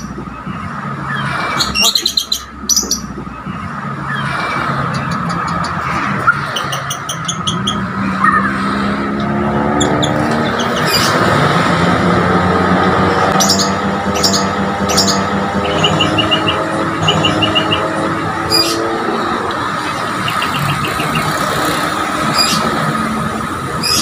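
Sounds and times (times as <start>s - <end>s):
bird chirping song: 0.0s - 8.6s, 9.2s - 11.3s, 13.2s - 19.2s, 20.0s - 22.9s
vehicle engine noise: 0.0s - 24.0s.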